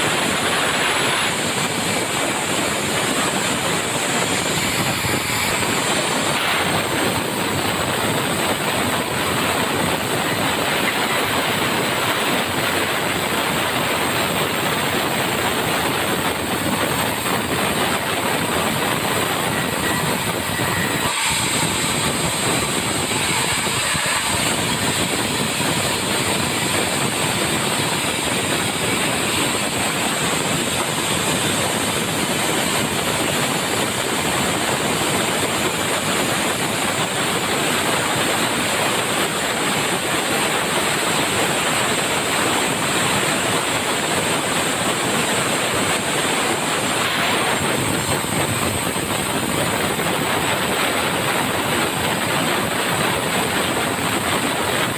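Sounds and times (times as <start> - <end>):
sawmill saw cutting log: 0.0 - 43.8.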